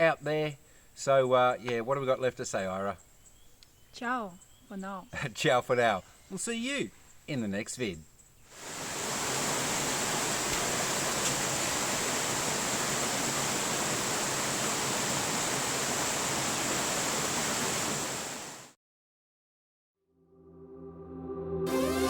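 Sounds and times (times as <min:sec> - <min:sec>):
faint high hiss: 0:05.8 - 0:18.7
rushing flowing water: 0:08.5 - 0:18.7.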